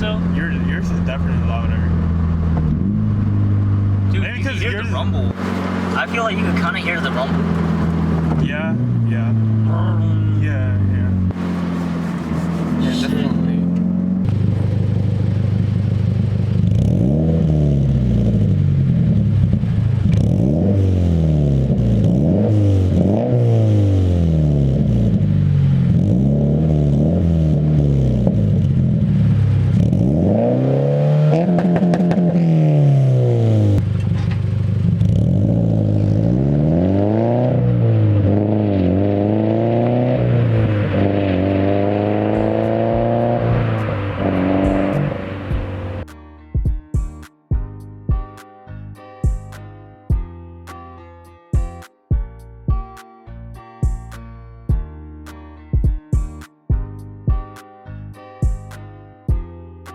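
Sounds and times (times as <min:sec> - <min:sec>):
car engine revving: 0:00.0 - 0:46.1.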